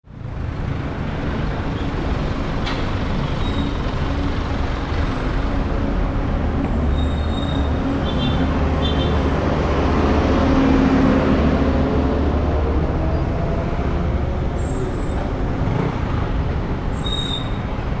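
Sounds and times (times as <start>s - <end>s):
city traffic: 0.0s - 18.0s.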